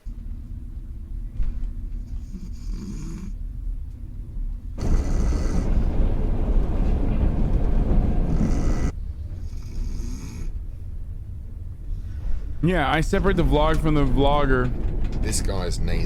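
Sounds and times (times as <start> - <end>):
throaty breathing: 2.0 - 3.4, 4.8 - 6.1, 8.2 - 10.6
man snoring: 2.2 - 3.4, 4.8 - 5.8, 8.3 - 10.5.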